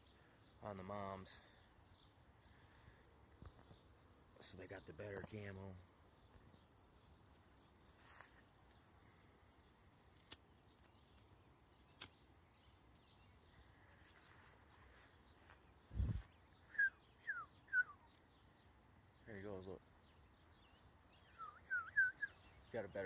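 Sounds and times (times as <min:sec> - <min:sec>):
high thin bird chirps: 0:01.7 - 0:23.0
down-slurred whistled bird notes: 0:15.9 - 0:18.3, 0:20.4 - 0:23.0.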